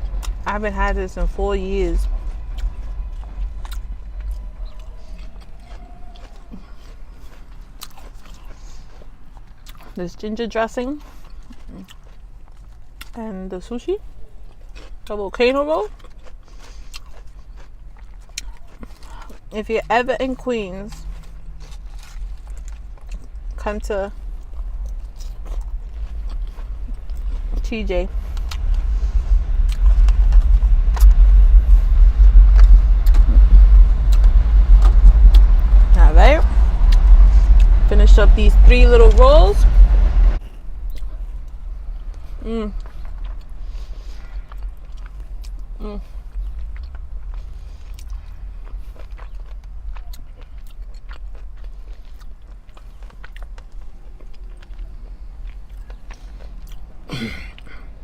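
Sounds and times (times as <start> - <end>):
close chewing: 0.0 - 36.0, 40.4 - 58.0
car rumble: 0.0 - 58.0
steady low hum: 0.0 - 58.0.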